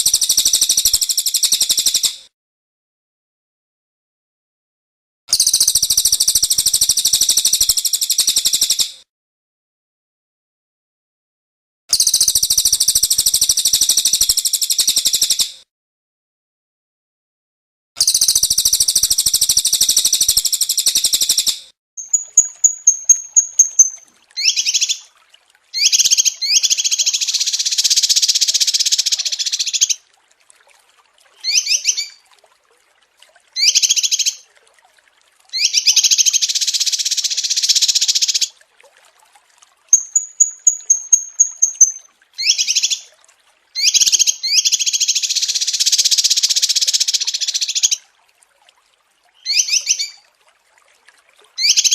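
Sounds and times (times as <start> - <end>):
small songbirds singing: 22.0 - 25.1, 31.4 - 32.2, 35.6 - 38.5, 39.9 - 43.1, 49.4 - 50.2.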